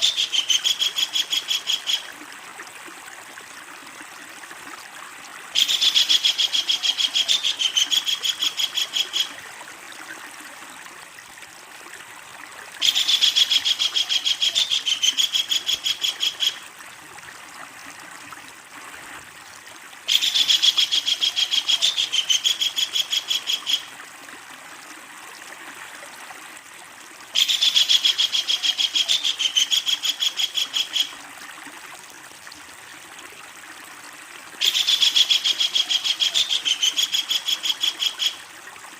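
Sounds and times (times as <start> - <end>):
kingfisher rattling call: 34.6 - 38.4.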